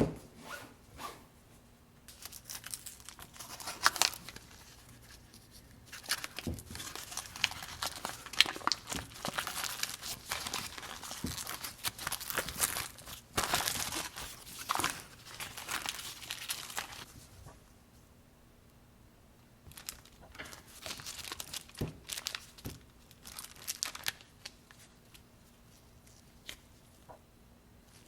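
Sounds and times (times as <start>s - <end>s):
packaging crinkling: 2.1s - 17.1s, 19.7s - 25.2s.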